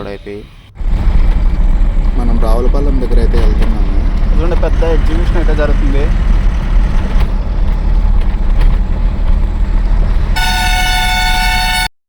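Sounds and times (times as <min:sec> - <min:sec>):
lorry engine and road noise: 0:00.0 - 0:11.9
truck horn: 0:10.2 - 0:12.0.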